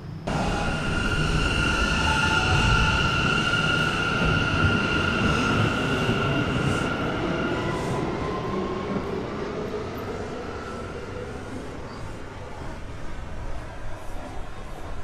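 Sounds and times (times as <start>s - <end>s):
subway train wheel rumble: 0.0s - 15.0s.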